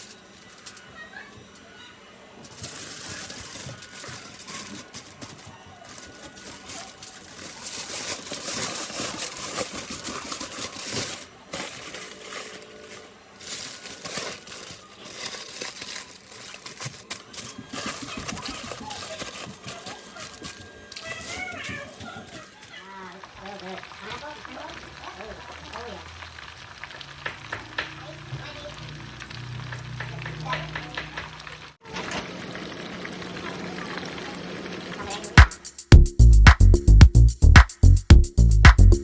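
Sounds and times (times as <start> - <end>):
food frying in hot oil: 22.9 - 35.4.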